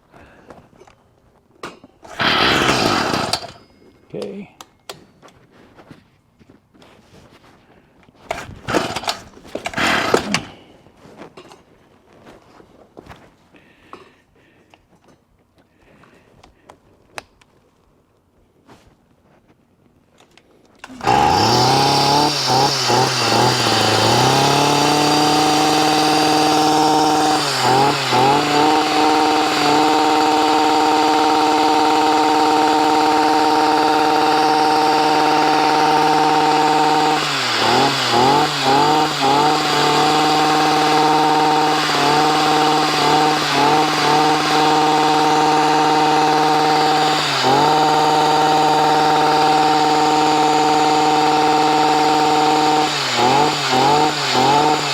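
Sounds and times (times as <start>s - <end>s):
two-stroke tiller engine running: 2.0s - 3.6s, 8.3s - 10.7s, 20.8s - 54.9s.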